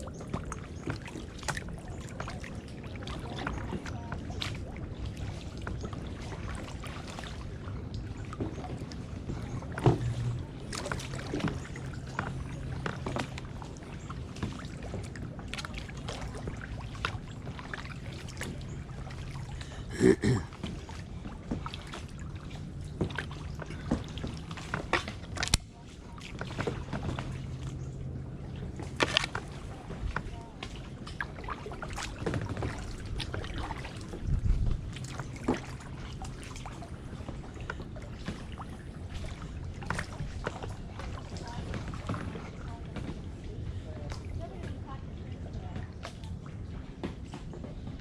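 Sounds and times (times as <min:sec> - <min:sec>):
water splashing and dripping: 0:00.0 - 0:43.2
paddle knocks and clacks: 0:00.1 - 0:28.0.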